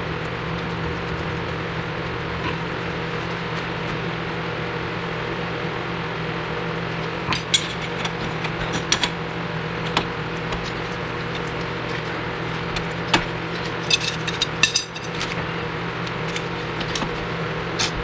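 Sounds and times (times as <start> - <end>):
machine hum: 0.0 - 18.0
sharp metallic clicks and knocks: 9.8 - 15.4.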